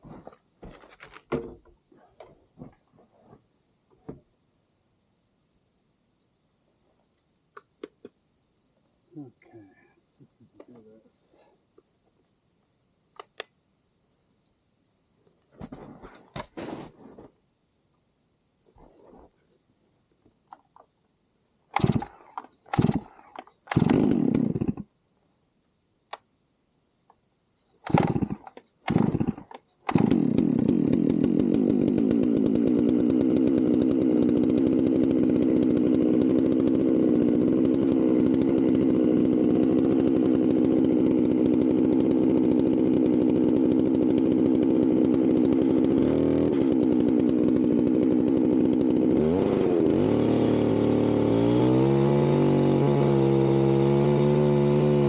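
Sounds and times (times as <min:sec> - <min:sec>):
chainsaw cutting log: 0:21.7 - 0:24.9, 0:27.8 - 0:55.0.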